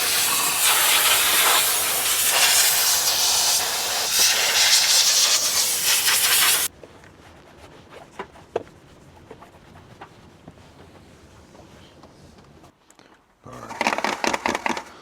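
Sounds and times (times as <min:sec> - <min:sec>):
steam cleaner hissing: 0:00.0 - 0:06.7.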